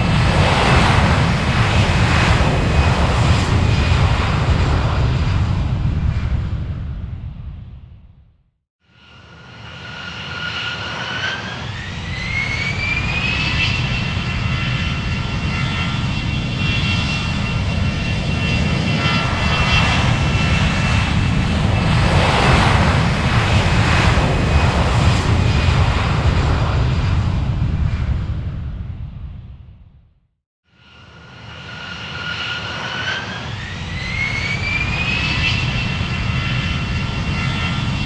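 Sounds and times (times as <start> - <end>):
aircraft engines whining: 0.0 - 8.0, 9.0 - 29.5, 30.8 - 38.0
heavy rumble: 0.0 - 8.4, 14.2 - 30.1.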